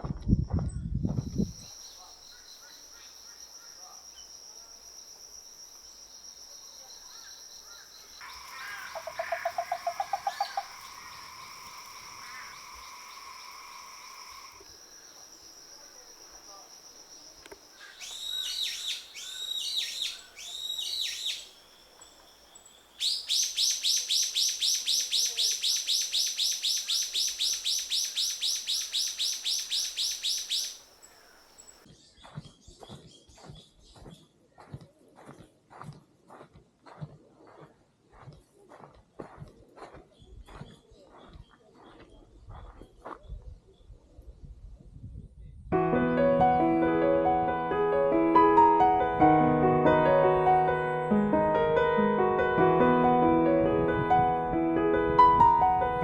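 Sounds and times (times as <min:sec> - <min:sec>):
high insect drone: 0:01.2 - 0:31.8
rhythmic insect chirring: 0:01.2 - 0:31.9
sweeping bird calls: 0:07.0 - 0:15.3, 0:17.1 - 0:31.8.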